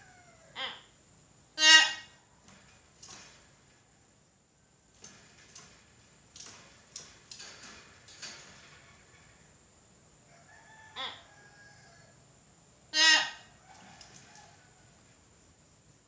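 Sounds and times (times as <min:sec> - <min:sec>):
myna calling: 0:01.6 - 0:02.2, 0:12.9 - 0:13.5.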